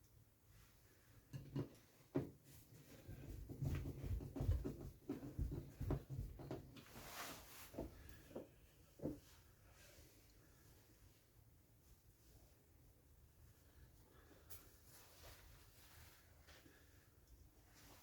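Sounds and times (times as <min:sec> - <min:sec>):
tools knocking and tapping: 0:01.3 - 0:02.4, 0:03.6 - 0:06.8.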